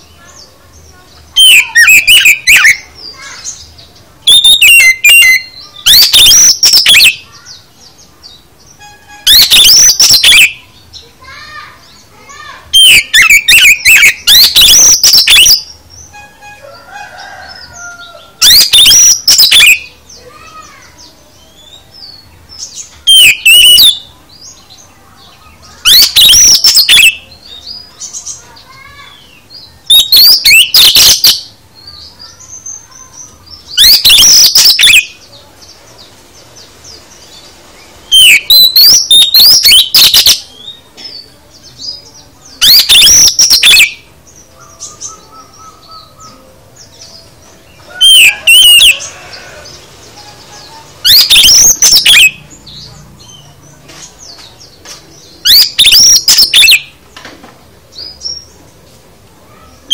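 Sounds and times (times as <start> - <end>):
soft bird twittering: 0.0 - 57.0
bird singing shrill whistles: 1.4 - 3.6, 4.2 - 7.7, 8.6 - 10.8, 11.4 - 16.2, 18.4 - 20.8, 21.4 - 24.1, 25.6 - 28.3, 29.1 - 31.6, 32.6 - 35.3, 38.1 - 41.2, 42.6 - 47.1, 47.7 - 49.5, 51.0 - 52.8, 55.5 - 56.9.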